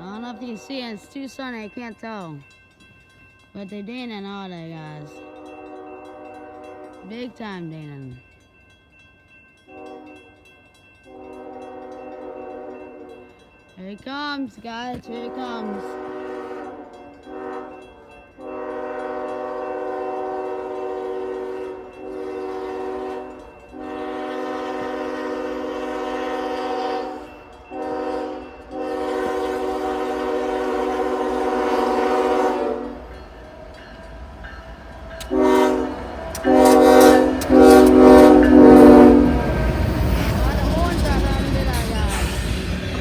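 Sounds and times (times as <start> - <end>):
train rumble: 11.0 - 43.0
locomotive air horn blasts: 11.1 - 13.1, 15.0 - 17.8, 18.4 - 33.1, 35.2 - 40.3.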